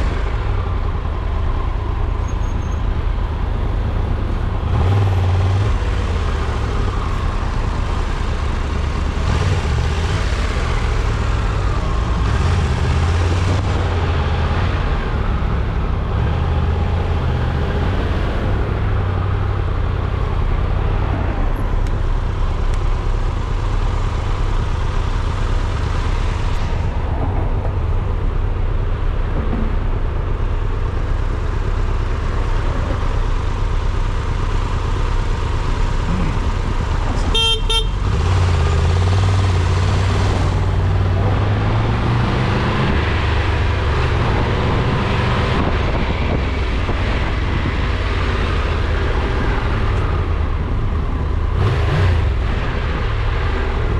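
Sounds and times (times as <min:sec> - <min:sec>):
car driving rumble: 0:00.0 - 0:53.9
car horn honk: 0:37.3 - 0:38.1.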